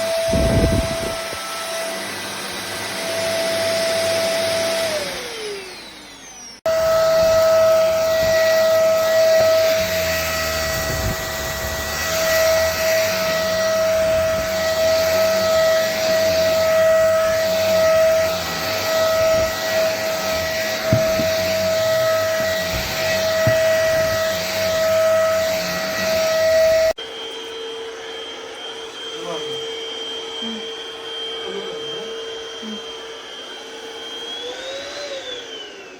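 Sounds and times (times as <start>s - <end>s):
vacuum motor whine: 0.0s - 35.9s
short knocks: 20.8s - 21.6s, 22.3s - 24.3s.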